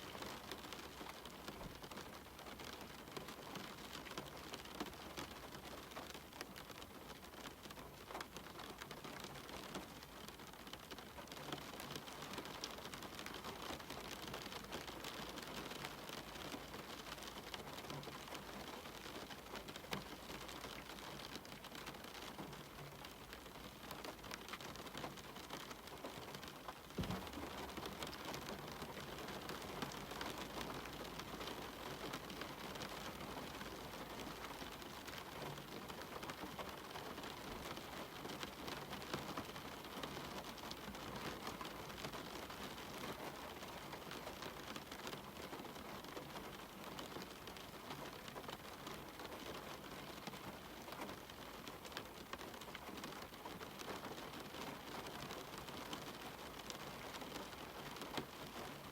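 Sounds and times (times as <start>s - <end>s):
rain on a window: 0.0s - 58.9s
low thud: 27.0s - 27.4s.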